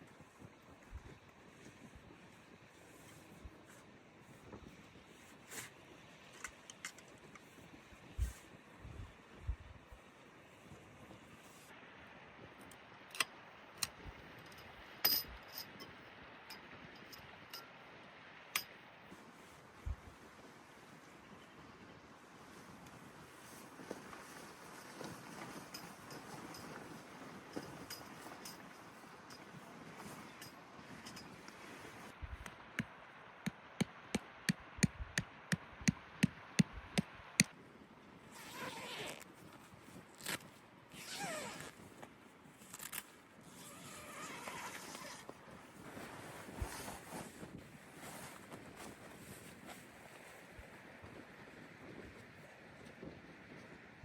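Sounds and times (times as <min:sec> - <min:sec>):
soft rustling or scraping: 0:00.0 - 0:10.1, 0:10.7 - 0:11.8, 0:22.2 - 0:32.4, 0:38.3 - 0:53.8.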